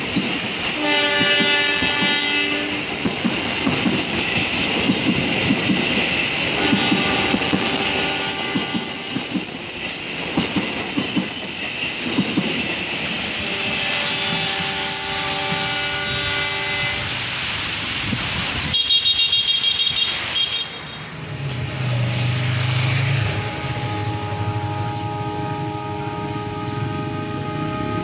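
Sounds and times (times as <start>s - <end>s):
train wheels clicking over rail joints: 0.0s - 20.5s.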